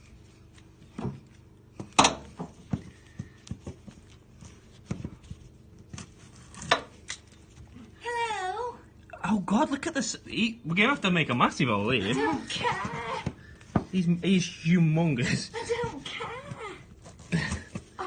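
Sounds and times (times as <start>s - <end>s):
knocks and thuds of handling: 0.8s - 6.0s.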